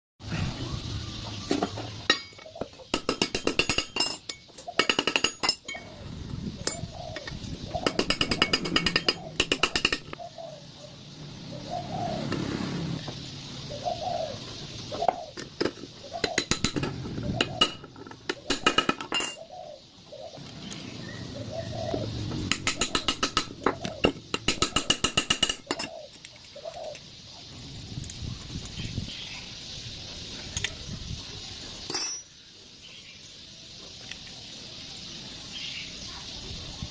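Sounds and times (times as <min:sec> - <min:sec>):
metallic clinking and rattling: 0:01.6 - 0:05.9, 0:07.8 - 0:10.2, 0:31.8 - 0:32.5.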